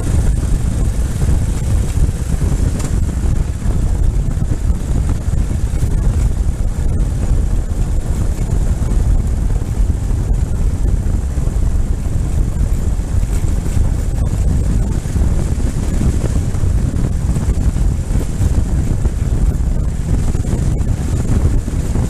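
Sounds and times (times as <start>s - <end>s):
motorcycle engine drone: 0.0s - 22.0s
wind buffeting microphone: 0.0s - 22.0s.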